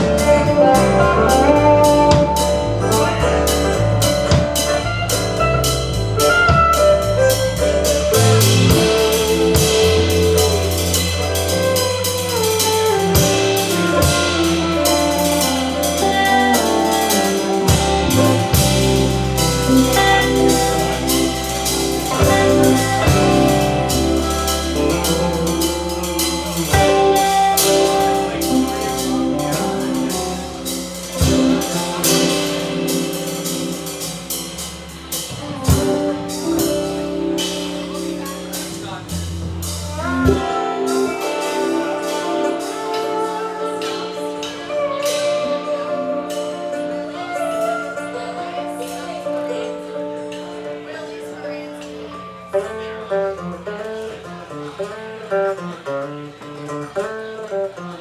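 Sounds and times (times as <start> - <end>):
bass line: 0.0 - 49.1
drum kit beat: 0.0 - 50.5
lead melody: 0.0 - 58.0.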